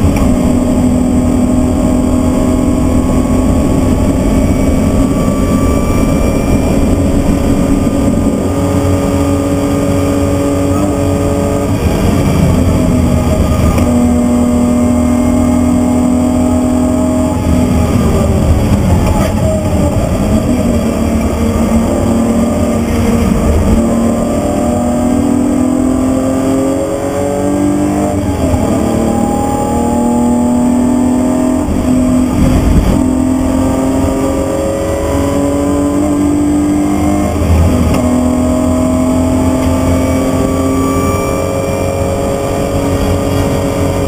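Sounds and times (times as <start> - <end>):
car engine revving: 0.0 - 44.0
road and wind noise: 0.0 - 44.0.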